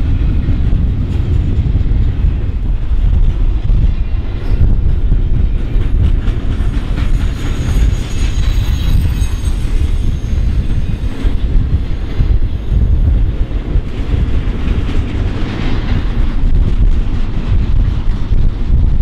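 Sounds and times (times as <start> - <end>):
freight train rumbling: 0.0 - 19.0
high wheel squeal: 6.5 - 13.2.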